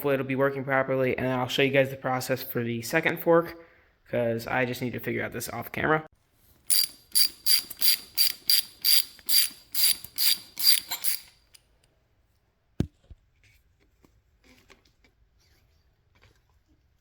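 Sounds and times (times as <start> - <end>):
ratchet wrench ratcheting: 6.7 - 11.6.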